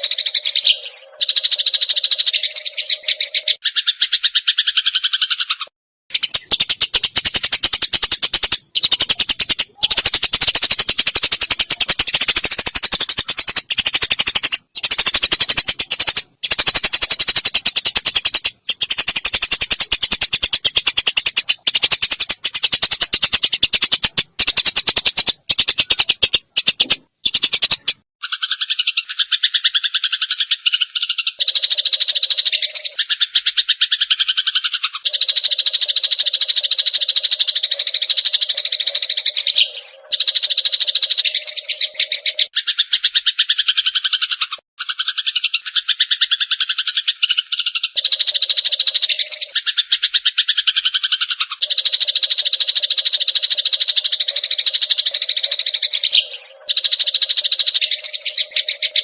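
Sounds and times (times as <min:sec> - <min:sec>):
sparrows chattering: 0:00.0 - 0:59.0
tonal bird chirps: 0:00.0 - 0:59.0.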